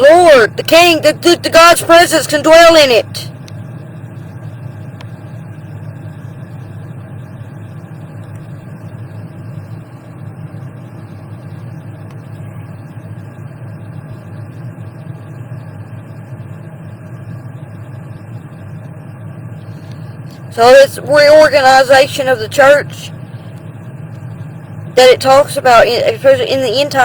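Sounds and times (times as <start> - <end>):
low rumbling hum: 0.0 - 27.0.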